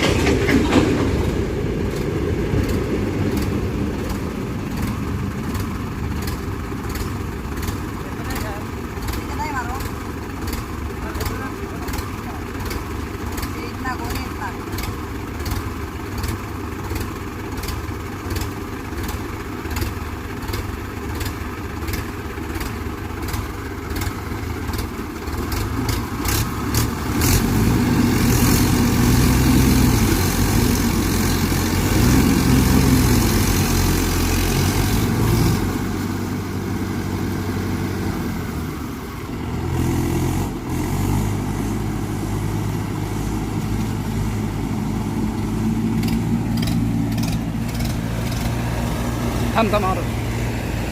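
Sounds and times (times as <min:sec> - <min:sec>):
tractor diesel engine straining: 0:00.0 - 0:50.9
regular ticking: 0:45.2 - 0:50.4.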